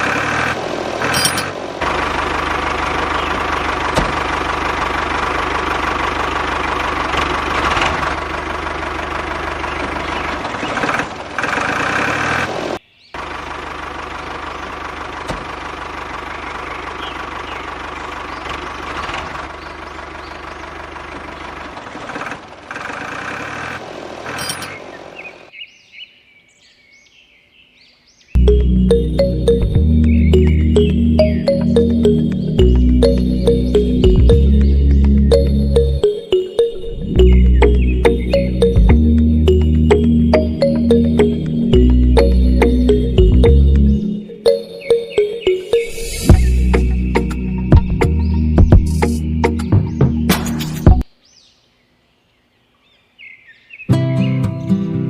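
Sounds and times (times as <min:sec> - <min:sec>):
toy backhoe engine running: 0:00.0 - 0:20.2, 0:20.8 - 0:24.8.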